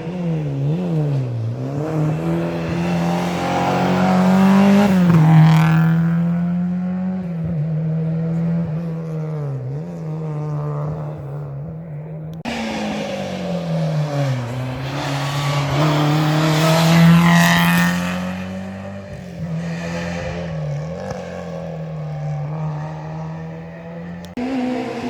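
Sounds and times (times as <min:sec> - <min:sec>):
car passing by: 0:00.0 - 0:07.3, 0:12.4 - 0:25.0
rally car engine with gear changes: 0:00.0 - 0:25.0.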